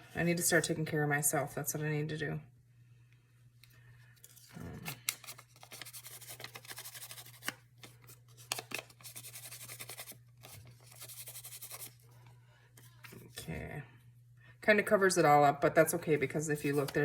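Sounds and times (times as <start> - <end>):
paper rustling: 4.2 - 12.0, 16.6 - 17.0
scissors cutting paper: 4.9 - 7.6, 8.4 - 12.0.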